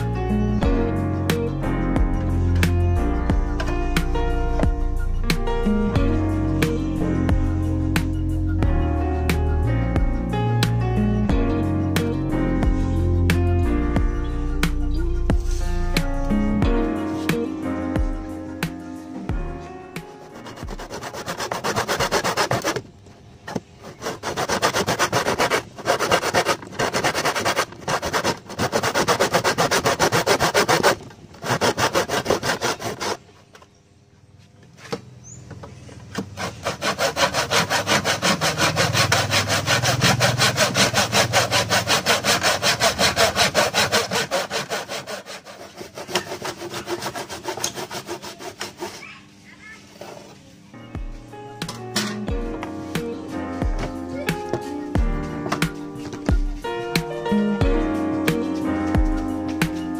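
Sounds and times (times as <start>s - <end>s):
hand saw cutting wood: 20.0s - 22.8s, 23.5s - 33.3s, 36.2s - 49.2s.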